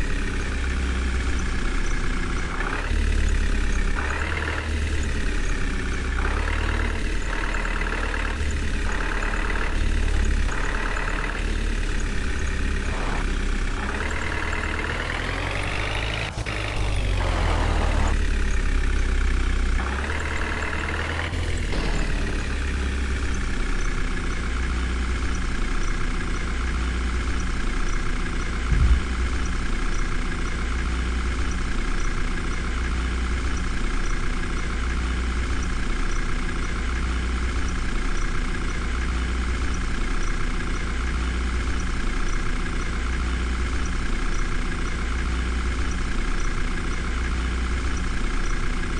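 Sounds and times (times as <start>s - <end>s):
heavy vehicle engine idling and revving: 0.0s - 48.9s
low thump: 28.7s - 29.4s.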